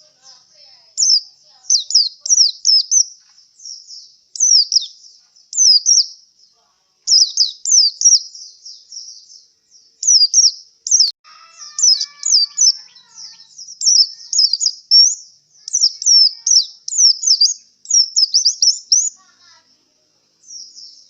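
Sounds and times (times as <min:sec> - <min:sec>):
bird singing high sweeping notes: 0:07.1 - 0:19.2.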